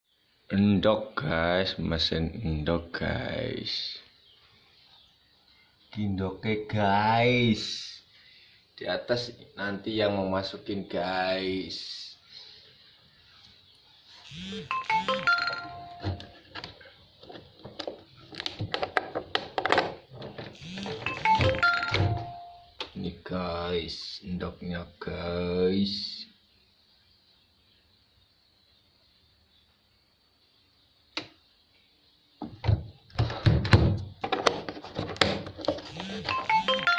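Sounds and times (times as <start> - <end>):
electronic beeping jingle: 14.3 - 16.3, 20.6 - 22.7, 35.9 - 36.9
loud knocks and thumps: 32.4 - 35.5.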